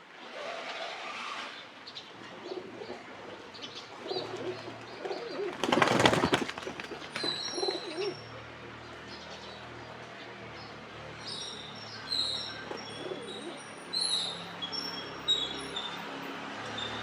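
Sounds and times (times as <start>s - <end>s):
pigeons cooing: 2.3s - 8.2s, 12.6s - 13.7s.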